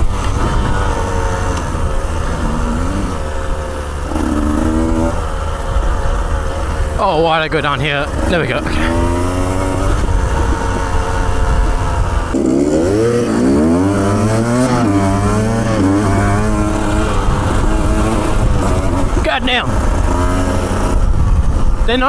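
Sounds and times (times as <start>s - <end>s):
motorcycle engine running: 0.0s - 22.0s
wind on microphone: 8.0s - 22.0s.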